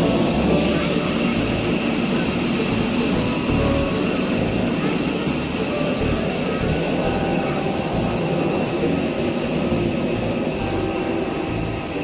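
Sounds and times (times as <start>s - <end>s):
jet engines whining: 0.0s - 12.0s.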